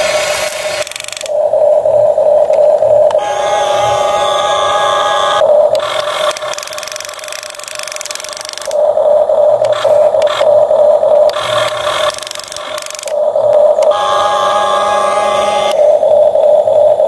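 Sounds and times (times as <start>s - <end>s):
toy excavator motor whirring: 0.0s - 1.4s, 3.2s - 8.8s, 11.3s - 13.2s.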